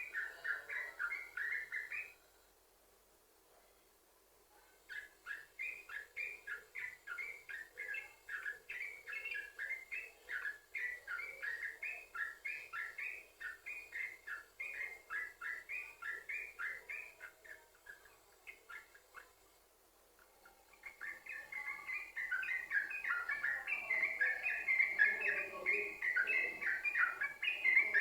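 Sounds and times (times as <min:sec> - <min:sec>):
bird singing chattering notes: 0:20.8 - 0:28.0.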